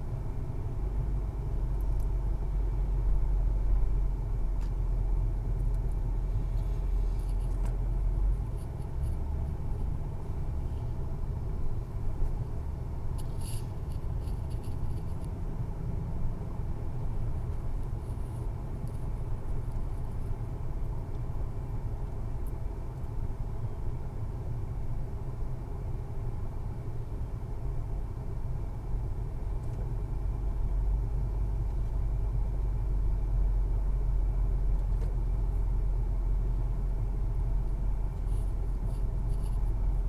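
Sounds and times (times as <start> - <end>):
motorcycle engine and road rumble: 29.4 - 40.0.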